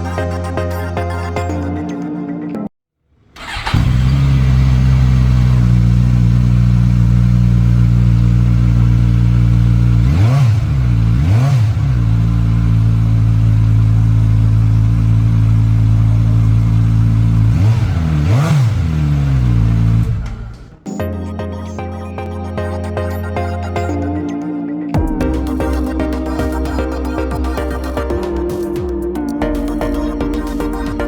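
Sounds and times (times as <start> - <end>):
motorcycle engine idling: 3.4 - 11.2, 11.9 - 18.2
throttle blips: 20.9 - 31.0.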